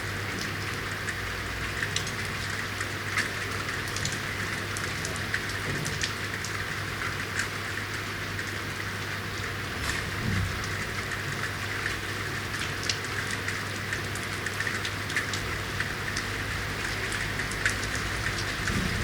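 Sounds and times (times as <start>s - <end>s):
rain falling: 0.0s - 19.0s
drips ticking: 10.6s - 19.0s.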